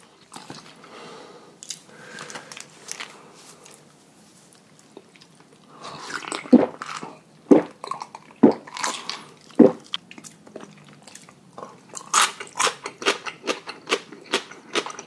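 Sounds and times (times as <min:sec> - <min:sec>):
person chewing: 0:04.7 - 0:15.0.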